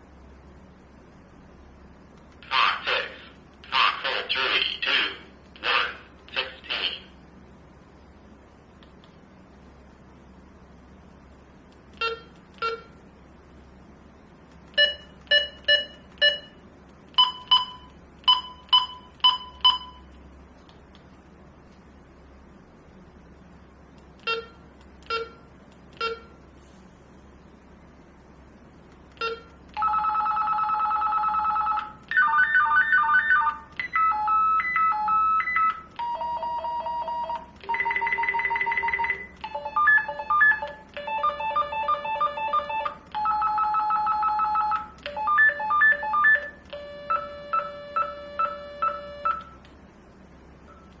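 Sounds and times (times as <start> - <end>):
electronic ringtone melodies: 29.2 - 49.5.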